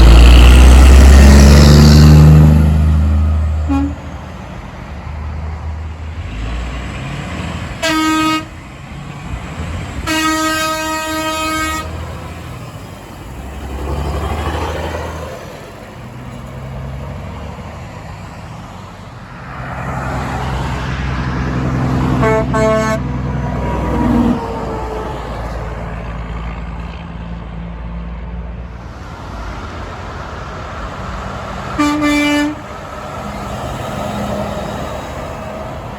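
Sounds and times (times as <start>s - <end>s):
trucks passing: 0.0s - 35.9s
truck horn toots and blasts: 3.6s - 4.2s, 7.8s - 8.6s, 10.0s - 12.1s, 22.1s - 23.2s, 31.8s - 32.8s.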